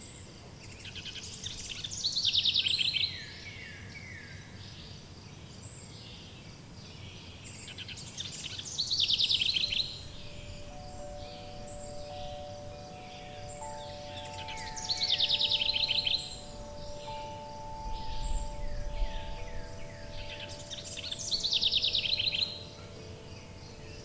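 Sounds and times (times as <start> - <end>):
forest birds singing: 0.0 - 24.0
bird song ending in trill: 8.3 - 24.0
wind chime tones: 9.5 - 24.0.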